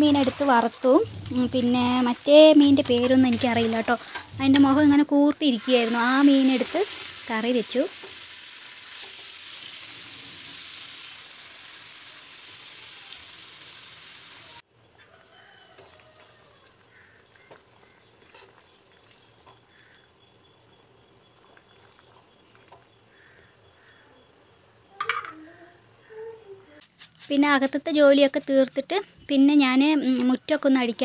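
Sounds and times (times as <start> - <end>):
fish sizzling in hot oil: 0.0 - 14.6, 15.6 - 25.0.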